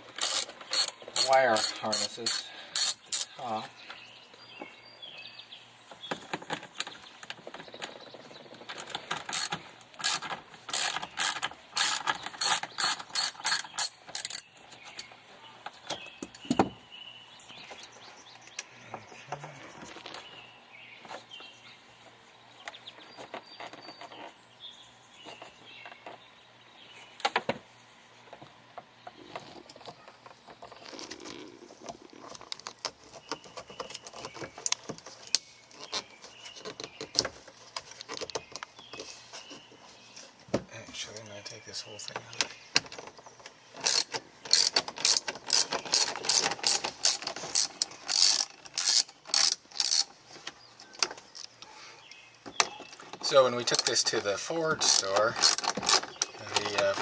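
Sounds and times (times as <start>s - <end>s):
ratchet clicking: 0.2s - 3.3s, 9.3s - 14.4s, 43.8s - 50.1s, 54.8s - 56.3s
scattered clicks and knocks: 42.0s - 51.5s.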